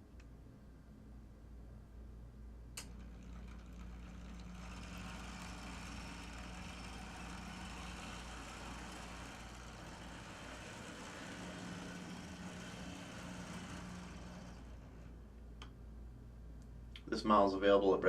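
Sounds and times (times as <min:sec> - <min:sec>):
model train motor humming: 0:02.8 - 0:15.2
whirring gears and wheels: 0:02.8 - 0:15.7.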